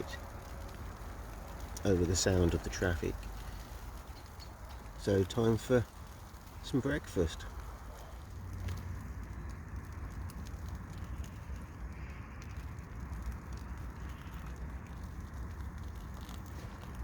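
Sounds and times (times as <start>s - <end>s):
distant road traffic: 0.0s - 17.0s
wind: 0.0s - 17.0s
faint ticks: 7.4s - 17.0s.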